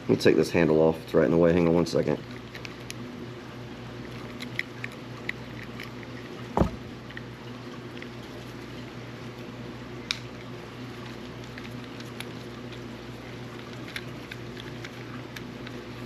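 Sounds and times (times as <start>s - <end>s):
steady low hum: 0.0s - 16.0s
dull thump: 6.6s - 6.9s.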